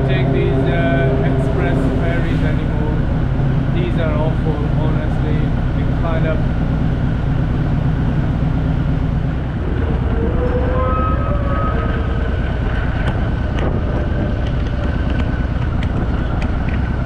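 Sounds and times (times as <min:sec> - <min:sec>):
vehicle engine running: 0:00.0 - 0:17.0
wind noise on microphone: 0:08.2 - 0:17.0.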